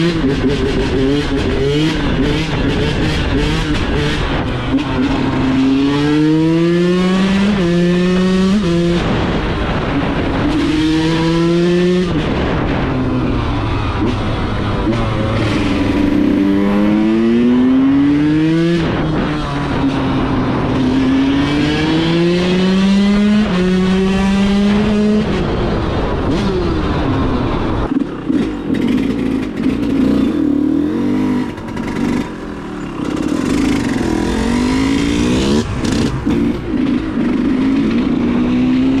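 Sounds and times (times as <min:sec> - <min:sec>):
two-stroke motocross engine revving: 0:00.0 - 0:12.6, 0:27.9 - 0:39.0.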